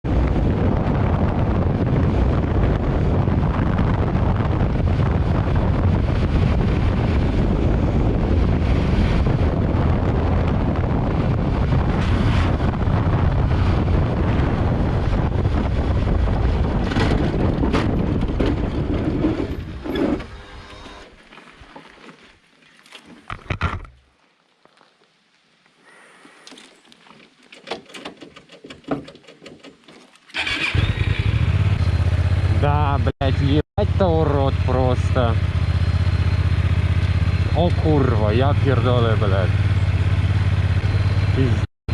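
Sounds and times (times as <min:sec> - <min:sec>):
wind buffeting microphone: 0:00.0 - 0:20.6.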